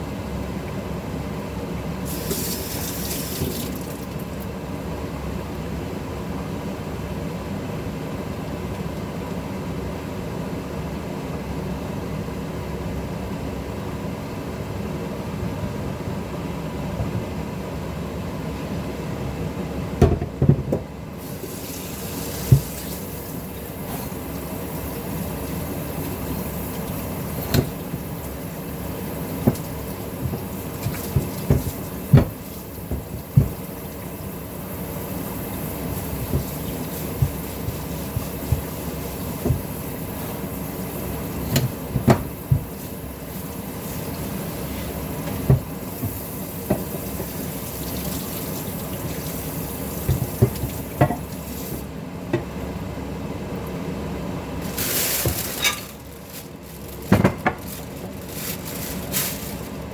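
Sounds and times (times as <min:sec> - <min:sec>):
tap water running into sink: 0:02.1 - 0:04.3, 0:21.4 - 0:28.4, 0:29.3 - 0:34.0, 0:35.2 - 0:42.9, 0:43.8 - 0:51.8.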